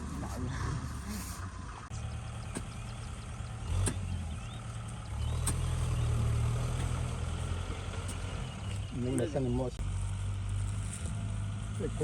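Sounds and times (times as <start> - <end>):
diesel tractor engine running: 0.0 - 12.0
sharp clicks: 5.2 - 6.0.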